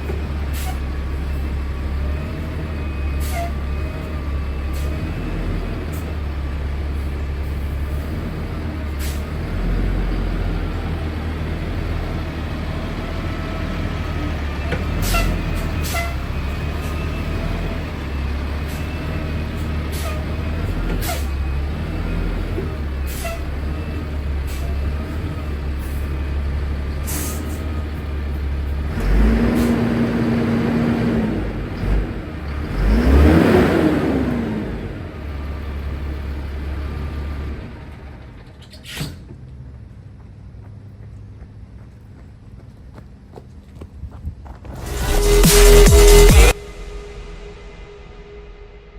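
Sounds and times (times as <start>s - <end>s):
diesel truck engine running: 0.0s - 38.8s, 44.7s - 48.9s
loud rising and falling noise: 44.6s - 48.9s.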